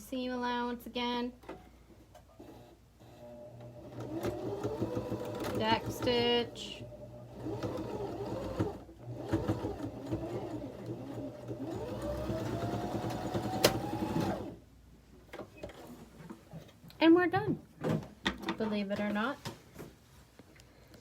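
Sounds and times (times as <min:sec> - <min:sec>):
sewing machine running: 0:02.4 - 0:14.6.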